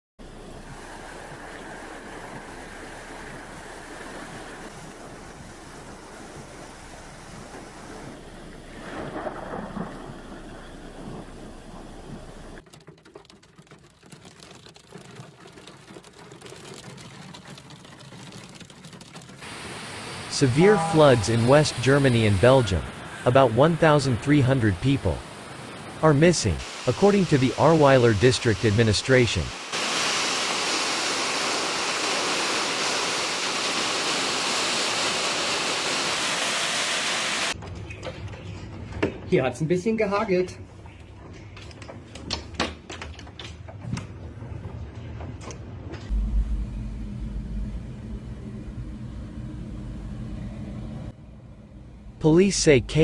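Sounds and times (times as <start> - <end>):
rain and wind rushing: 0.2 - 15.1, 19.0 - 37.6, 46.0 - 51.2
rain pattering on hard surface: 12.1 - 19.7.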